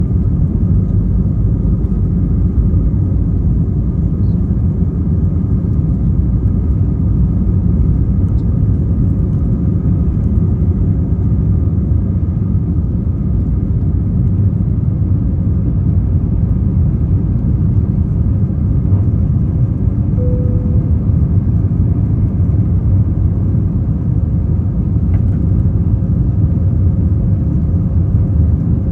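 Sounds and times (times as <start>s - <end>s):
airliner cabin rumble: 0.0s - 28.9s
faint steady tone: 20.2s - 22.4s.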